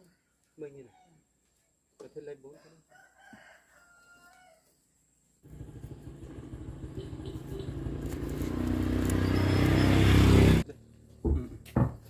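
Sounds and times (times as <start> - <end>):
vehicle engine running: 5.4 - 11.2.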